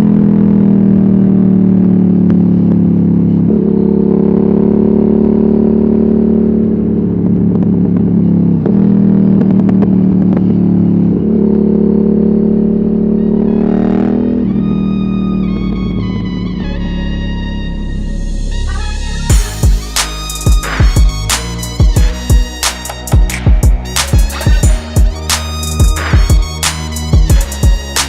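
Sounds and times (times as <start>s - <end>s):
motorcycle engine running hard: 0.0s - 15.6s, 19.3s - 22.5s
music: 13.2s - 28.0s.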